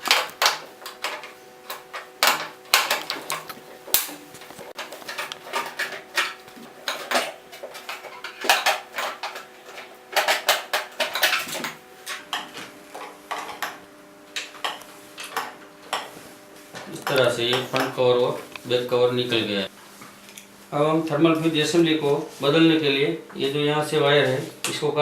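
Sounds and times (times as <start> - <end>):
plastic parts clicking and rattling: 0.0 - 12.4.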